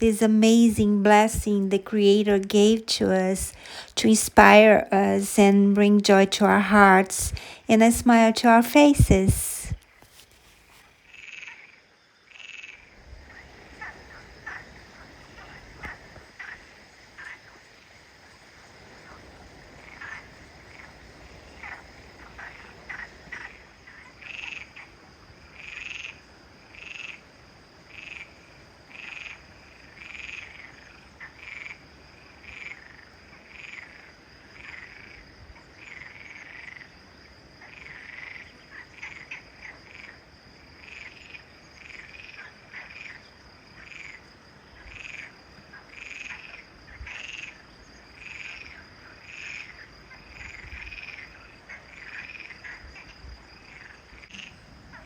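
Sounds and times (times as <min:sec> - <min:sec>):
frogs croaking: 0:11.0 - 0:55.0
high insect drone: 0:11.0 - 0:55.0.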